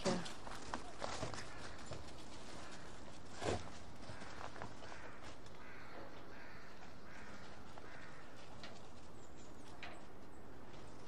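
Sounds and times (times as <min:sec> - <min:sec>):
outdoor background noise: 0:00.0 - 0:11.0
crows cawing: 0:01.1 - 0:08.7.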